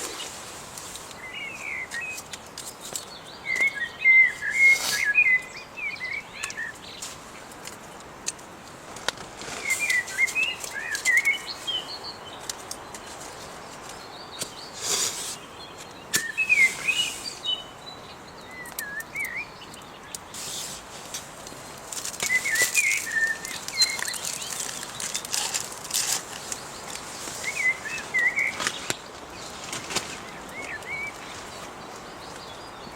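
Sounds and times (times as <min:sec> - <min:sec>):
steady background hiss: 0:00.0 - 0:32.9
songbird warbling: 0:14.1 - 0:20.7, 0:22.2 - 0:25.5.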